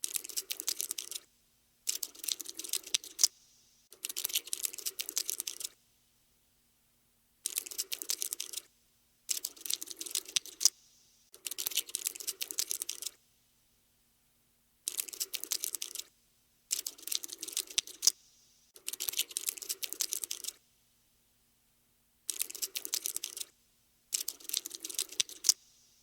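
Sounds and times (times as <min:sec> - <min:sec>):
cockroach skittering clicks: 0:00.0 - 0:05.8, 0:07.4 - 0:08.7, 0:09.3 - 0:13.2, 0:14.9 - 0:16.1, 0:16.7 - 0:20.6, 0:22.3 - 0:25.9.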